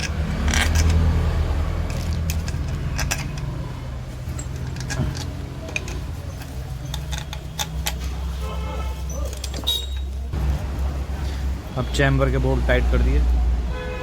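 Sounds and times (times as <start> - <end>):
metal clicks of bolts and tool: 0.0 - 1.2, 1.8 - 3.6, 4.2 - 8.2.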